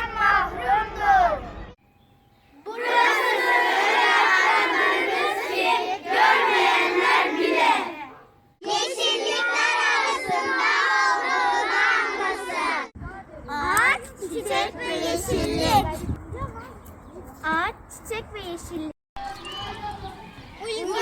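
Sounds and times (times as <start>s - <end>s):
children shouting together: 2.7s - 12.9s.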